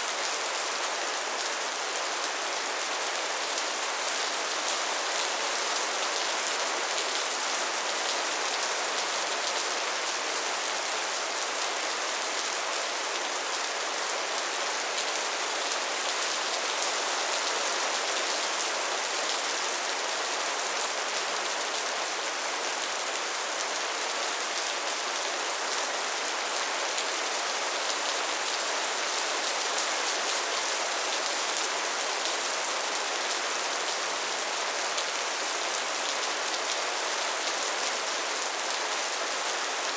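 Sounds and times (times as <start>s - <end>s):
soft rain falling: 0.0s - 39.9s.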